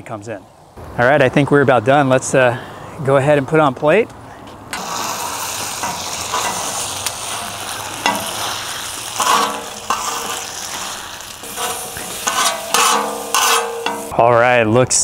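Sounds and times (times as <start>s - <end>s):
utensil scraping metal wok: 4.7s - 14.1s
food sizzling in a wok: 4.8s - 14.1s.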